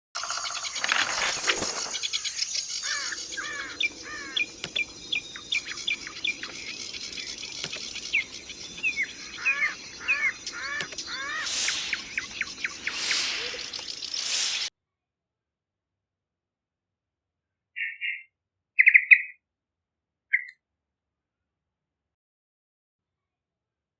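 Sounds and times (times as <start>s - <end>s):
bulbul singing: 1.9s - 14.7s.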